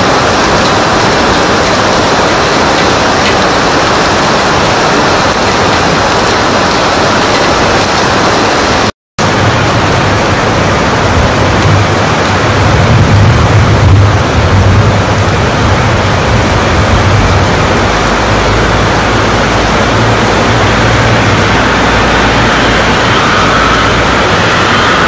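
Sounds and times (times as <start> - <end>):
heavy rain: 0.0 - 25.0
low rumble: 9.2 - 25.0.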